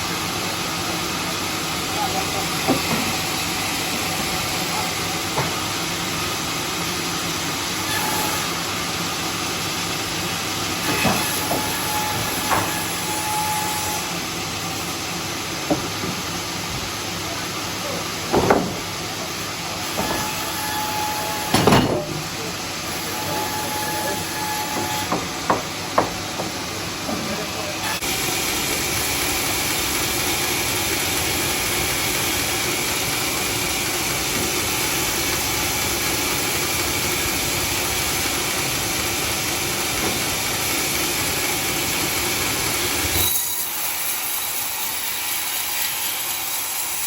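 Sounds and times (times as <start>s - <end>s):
sawmill hissing: 0.0s - 46.8s
knocks: 18.3s - 18.8s, 24.8s - 26.6s.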